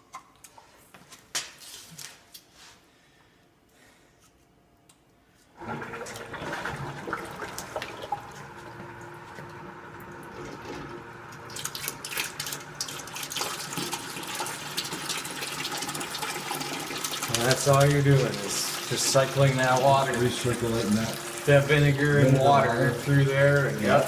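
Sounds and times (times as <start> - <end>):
small pump running: 5.6 - 24.0
water running and splashing: 10.0 - 24.0.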